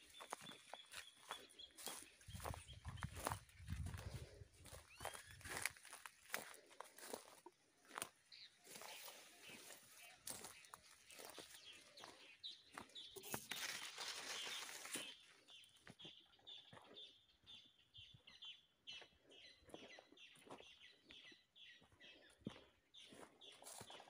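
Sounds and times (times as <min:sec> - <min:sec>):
small bird chirping: 0:00.0 - 0:06.0
footsteps on dry soil: 0:00.0 - 0:24.0
leaves rustling: 0:13.3 - 0:15.2.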